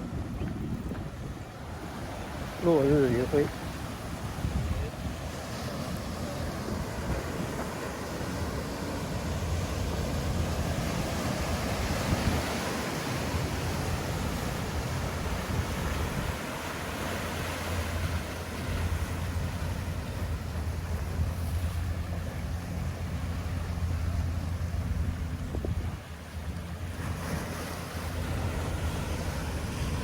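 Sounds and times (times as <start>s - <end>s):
ocean surf against cliffs: 0.0s - 30.0s
wind rumbling on microphone: 0.0s - 30.0s.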